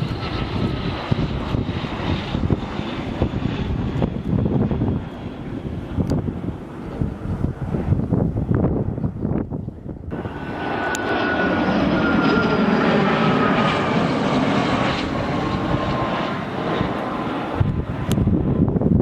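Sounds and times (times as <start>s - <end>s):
jet aircraft passing: 0.0s - 9.0s, 10.1s - 19.0s
turbine whine: 10.1s - 19.0s.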